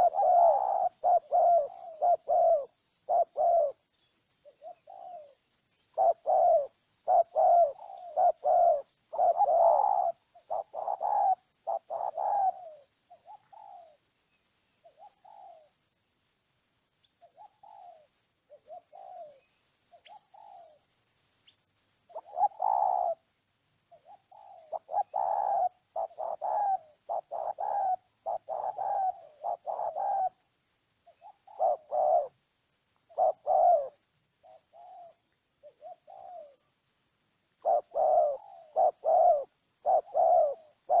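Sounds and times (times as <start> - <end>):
dove cooing: 0.0 - 14.1, 14.8 - 15.8, 17.2 - 20.8, 22.1 - 23.3, 23.9 - 32.4, 33.0 - 36.8, 37.6 - 41.0
faint high chirps: 16.6 - 32.3.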